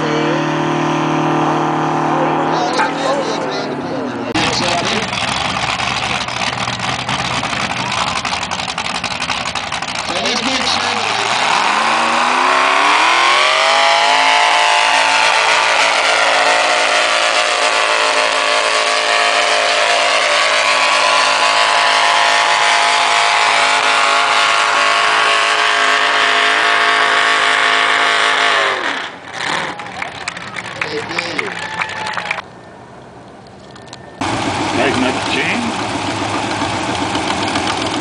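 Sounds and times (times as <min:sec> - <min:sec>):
tractor engine revving: 0:00.0 - 0:31.5, 0:34.2 - 0:38.0.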